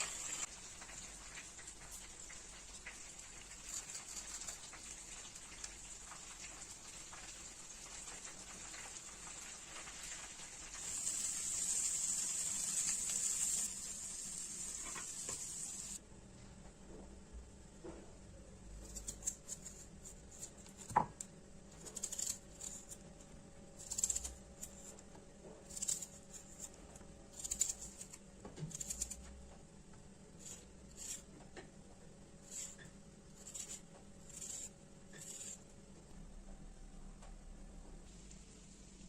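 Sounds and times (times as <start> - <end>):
food scraping strokes: 21.7 - 23.1, 23.8 - 29.4, 30.4 - 31.3, 32.4 - 35.7.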